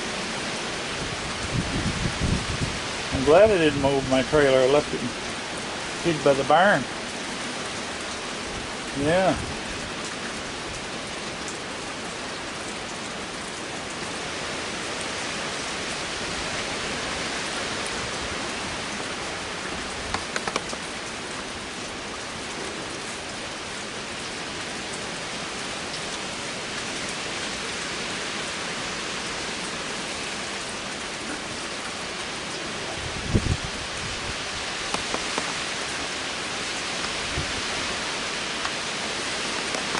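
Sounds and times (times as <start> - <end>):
heavy rain and wind: 0.0 - 39.9
cluster of clicks: 20.1 - 20.9, 34.9 - 35.6, 39.6 - 39.9.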